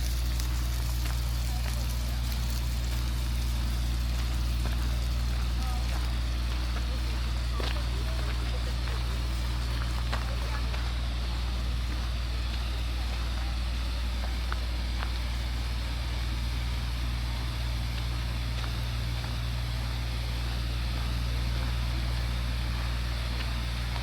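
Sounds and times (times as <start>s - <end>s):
city traffic rumble: 0.0s - 24.0s
steady hiss: 0.0s - 24.0s.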